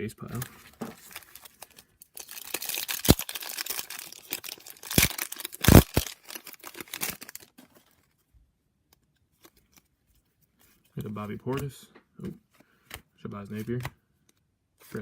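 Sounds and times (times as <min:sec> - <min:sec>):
wrapper crinkling and tearing: 0:00.3 - 0:08.1.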